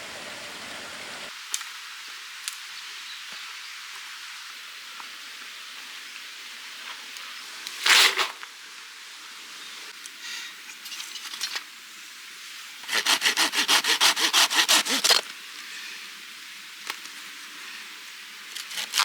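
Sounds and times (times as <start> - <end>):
hand saw cutting wood: 12.8 - 15.2, 18.6 - 19.0.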